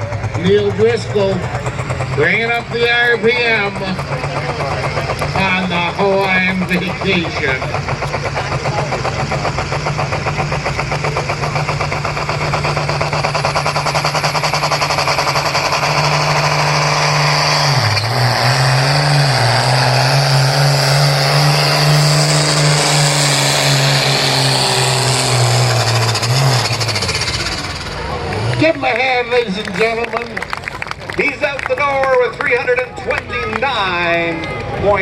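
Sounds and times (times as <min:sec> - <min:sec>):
tractor engine at full throttle: 0:00.0 - 0:35.0.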